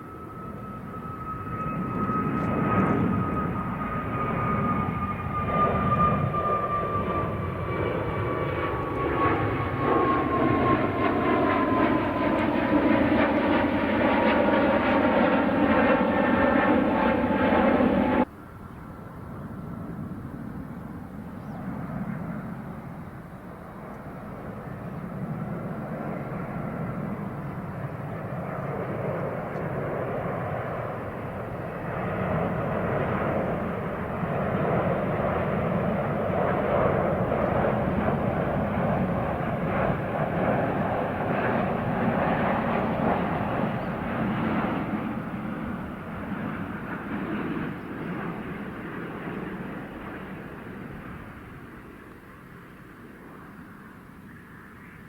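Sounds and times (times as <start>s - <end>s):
jet engine noise: 0.0s - 55.0s
jet engines whining: 0.0s - 55.0s.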